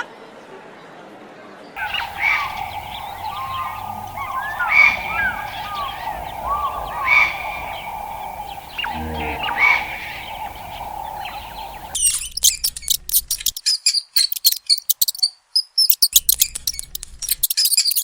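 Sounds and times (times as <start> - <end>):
birds chirping and calling: 1.8 - 12.0
brief low bird call: 1.8 - 12.0
loud repeating bird call: 1.8 - 12.0.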